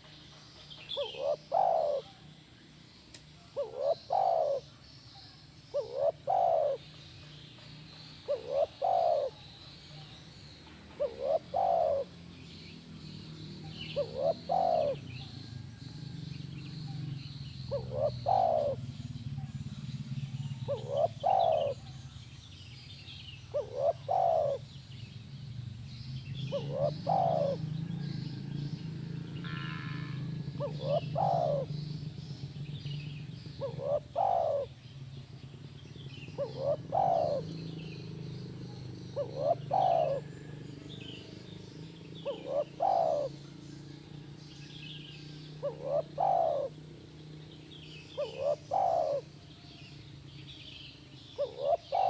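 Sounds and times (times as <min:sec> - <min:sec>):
birds chirping: 0:00.0 - 0:52.0
dove cooing: 0:00.9 - 0:02.3, 0:03.5 - 0:04.7, 0:05.7 - 0:07.0, 0:08.2 - 0:10.2, 0:10.8 - 0:12.4, 0:13.6 - 0:22.2, 0:23.5 - 0:24.8, 0:26.3 - 0:44.0, 0:44.7 - 0:49.8, 0:51.2 - 0:52.0.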